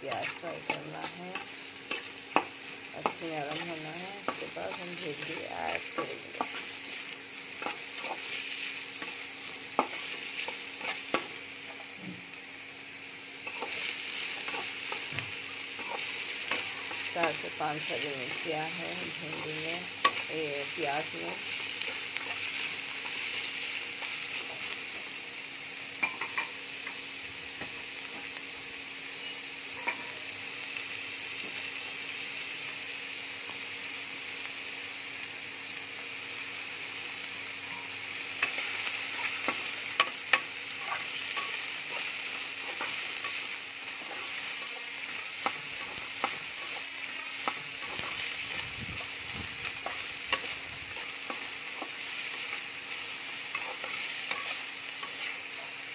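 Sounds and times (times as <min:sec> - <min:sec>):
onions sizzling in hot oil: 0:00.0 - 0:55.9
spatula clinking and scraping pan: 0:26.0 - 0:26.6, 0:29.8 - 0:30.2, 0:37.6 - 0:49.1, 0:53.5 - 0:55.8.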